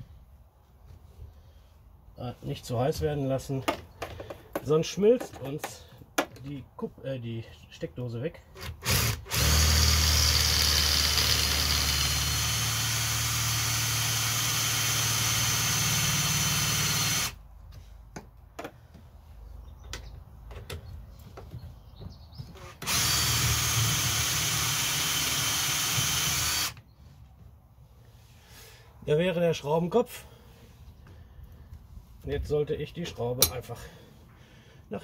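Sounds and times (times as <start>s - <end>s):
electric drill boring: 8.6s - 17.4s, 22.6s - 26.8s.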